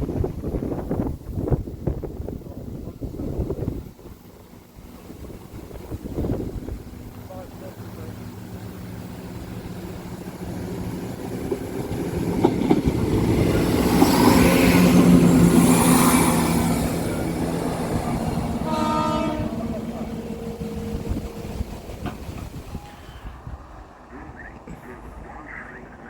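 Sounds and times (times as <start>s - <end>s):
passenger train passing: 0.0s - 26.0s
train horn blast: 18.6s - 21.0s.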